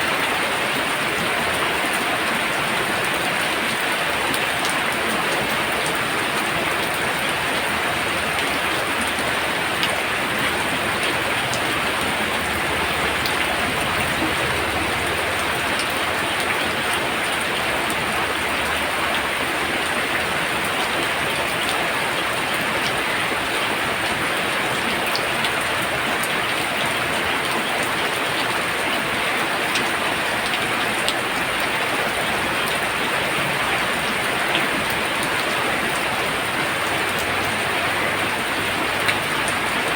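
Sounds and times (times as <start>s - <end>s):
heavy rain pouring: 0.0s - 39.9s
sharp raindrop ticks: 8.3s - 20.0s.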